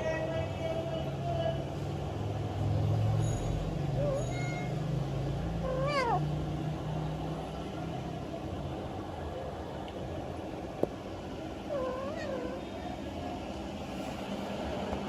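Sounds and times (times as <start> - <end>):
kitten mewing: 5.6 - 6.4, 11.6 - 12.7.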